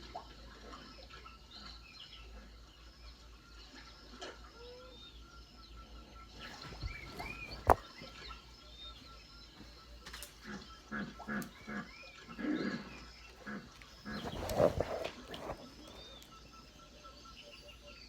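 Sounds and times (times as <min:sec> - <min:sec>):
birds chirping and calling: 0:10.4 - 0:16.4.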